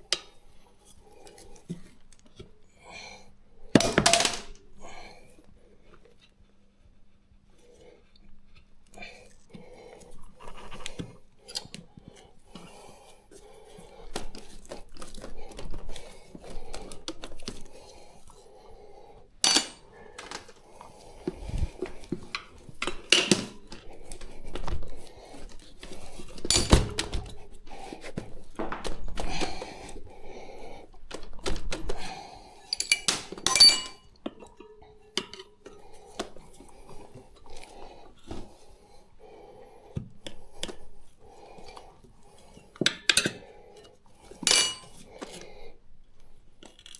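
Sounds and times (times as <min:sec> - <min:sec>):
metal tyre levers clinking: 0:32.7 - 0:34.0, 0:44.5 - 0:45.0.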